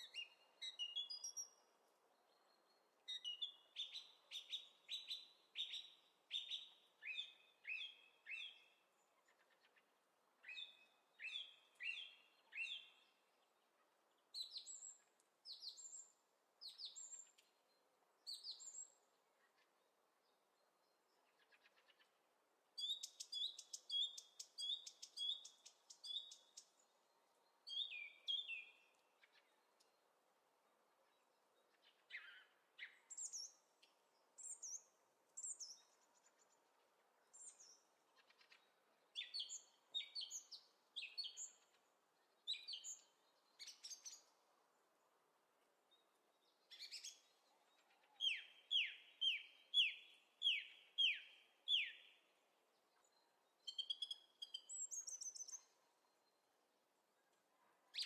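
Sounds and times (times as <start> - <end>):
small bird chirping: 22.8 - 26.9, 27.6 - 30.0, 37.3 - 44.3, 46.4 - 52.2, 53.0 - 55.8.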